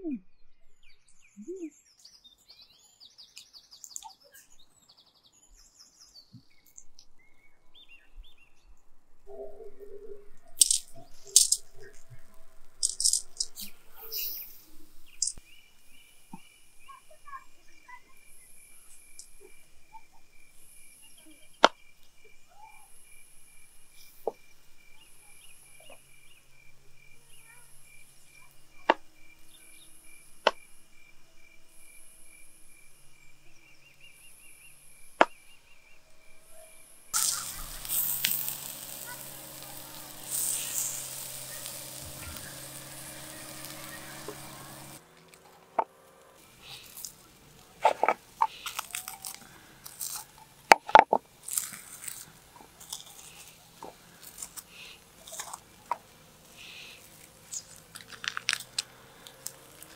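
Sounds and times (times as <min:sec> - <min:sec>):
campfire crackling: 0:08.8 - 0:35.4, 0:36.5 - 0:59.9
crickets trilling: 0:09.3 - 0:59.9
high insect call: 0:09.3 - 0:59.9
sharp clicks: 0:10.6 - 0:14.5, 0:15.1 - 0:15.4.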